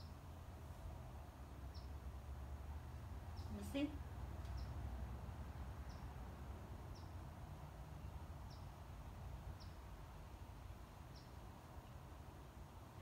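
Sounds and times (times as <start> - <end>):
low background hum: 0.0 - 13.0
small bird chirping: 1.7 - 2.0, 3.3 - 4.8, 5.8 - 6.2, 6.9 - 7.2, 8.0 - 8.8, 9.5 - 9.9, 11.1 - 11.4.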